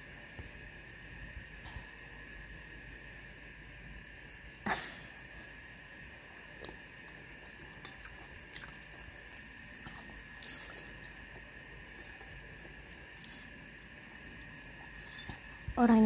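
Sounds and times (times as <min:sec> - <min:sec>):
soft chewing: 0:05.6 - 0:15.6.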